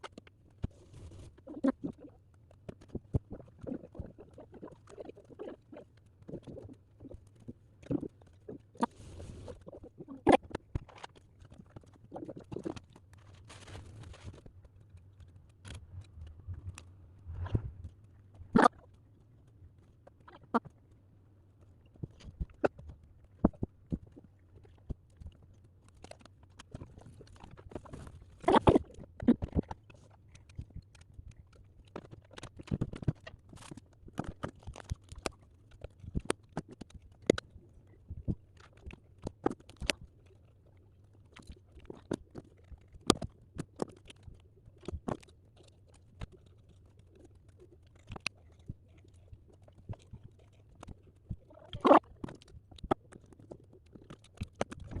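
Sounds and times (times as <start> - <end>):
paper rustling: 12.6 - 14.7.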